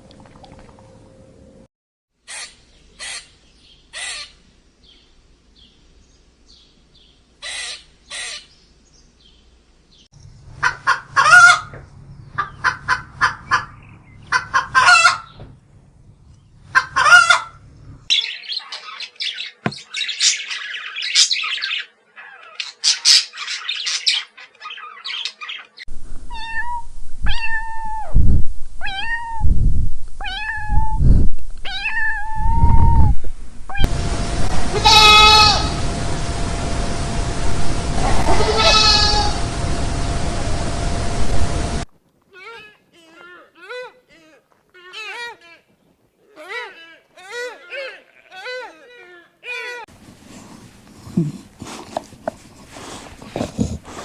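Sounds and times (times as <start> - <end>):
chaffinch chirping and calling: 18.1 - 25.8.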